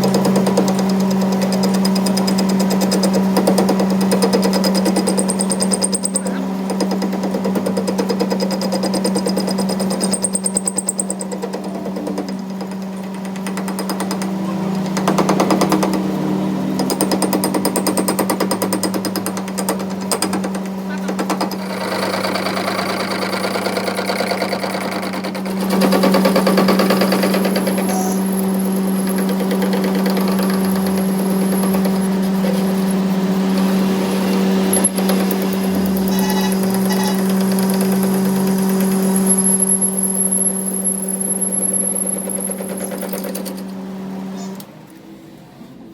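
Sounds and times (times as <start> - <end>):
mechanical hammering: 0.0 - 43.7
steady machine hum: 10.2 - 45.9.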